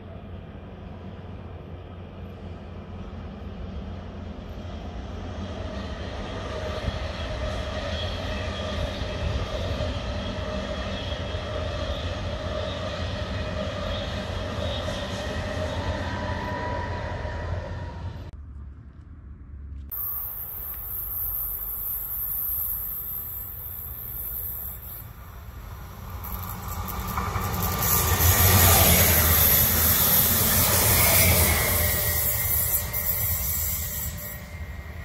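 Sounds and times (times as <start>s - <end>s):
train wheels rumbling: 19.8s - 35.0s
steady electric whine: 19.9s - 35.0s.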